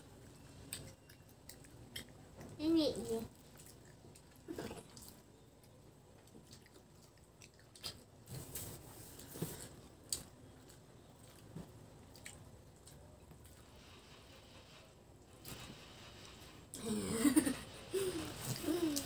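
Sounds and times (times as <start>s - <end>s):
chewing and wet mouth sounds: 0.2s - 13.8s.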